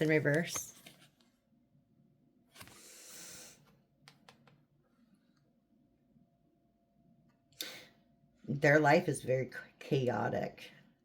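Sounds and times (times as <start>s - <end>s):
cards sliding: 2.6s - 2.9s.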